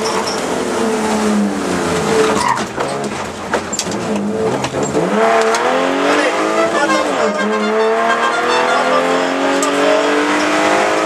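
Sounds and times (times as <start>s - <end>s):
rally car engine revving: 0.0s - 11.0s
knocks and clatter from car: 2.0s - 5.6s.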